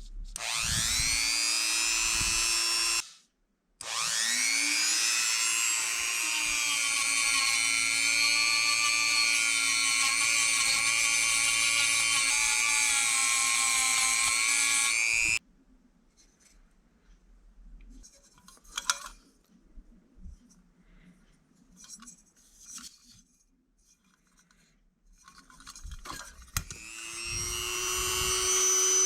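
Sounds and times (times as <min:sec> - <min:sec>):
rotary engraver motor whining: 0:00.4 - 0:03.0, 0:03.8 - 0:15.4, 0:26.6 - 0:29.0.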